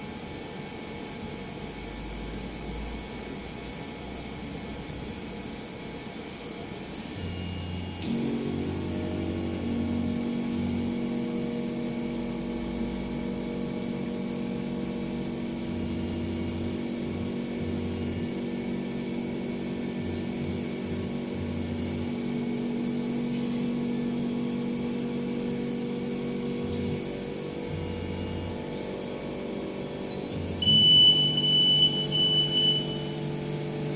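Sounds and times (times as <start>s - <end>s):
electrical hum with steady tones: 0.0s - 33.9s
low buzz cutting in and out: 0.0s - 33.9s.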